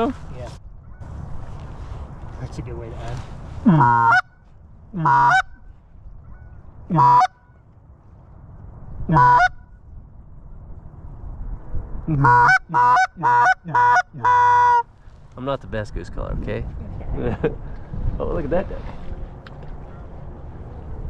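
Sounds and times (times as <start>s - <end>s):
goose call honking: 3.6s - 4.4s, 5.0s - 5.7s, 6.3s - 7.5s, 9.1s - 9.6s, 12.1s - 14.9s.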